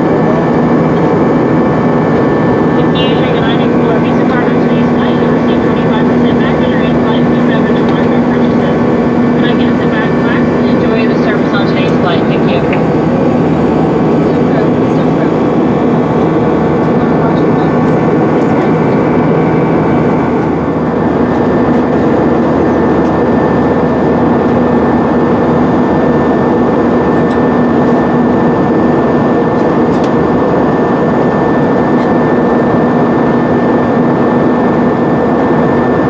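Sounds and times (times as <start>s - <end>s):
jet engine cabin hum: 0.0s - 36.0s.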